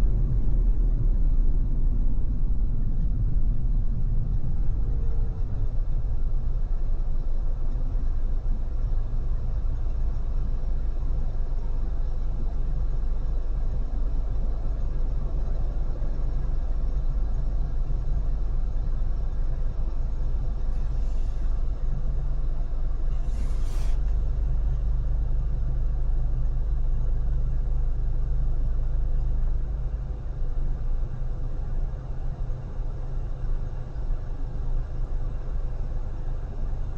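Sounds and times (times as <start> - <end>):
car road and wind rumble: 0.0 - 36.9
short hiss: 23.2 - 24.1.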